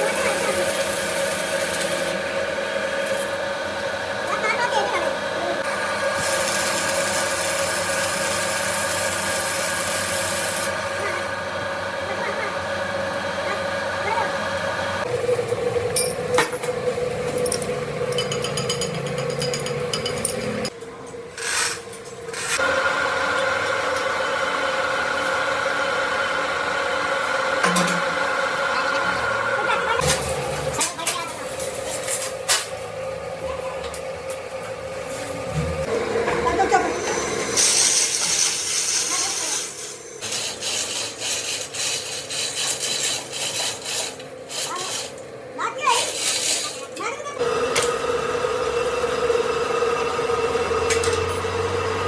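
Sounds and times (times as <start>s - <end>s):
different machine hum: 0.0s - 52.0s
metal-working machine humming: 0.0s - 52.0s
file rasping metal: 37.9s - 45.2s.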